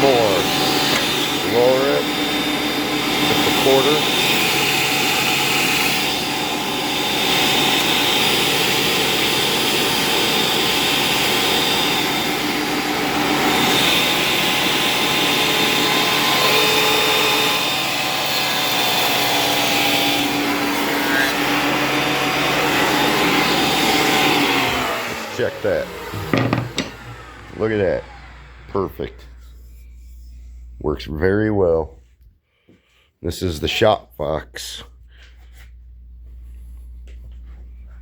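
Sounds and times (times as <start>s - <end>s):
planer cutting hiss: 0.0s - 29.6s
thickness planer motor whine: 0.0s - 30.8s.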